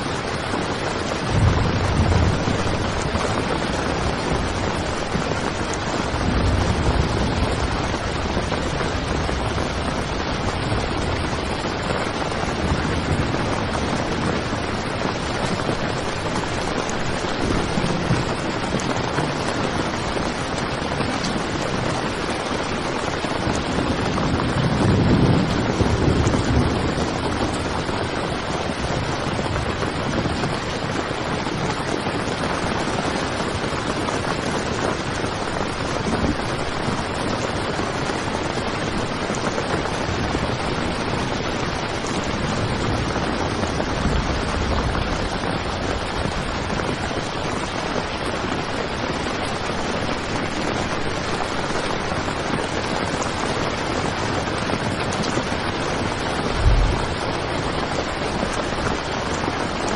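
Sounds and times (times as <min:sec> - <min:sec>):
heavy rain on a tent: 0:00.0 - 0:59.9
low rumbles: 0:56.4 - 0:57.5.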